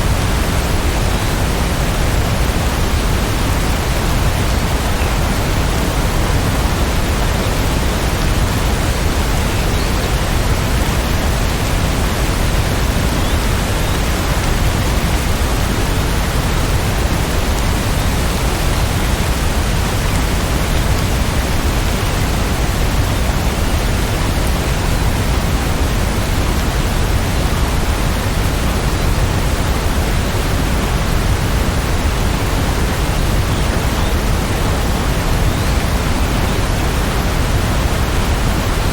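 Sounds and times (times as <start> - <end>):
heavy rainfall: 0.0 - 38.9.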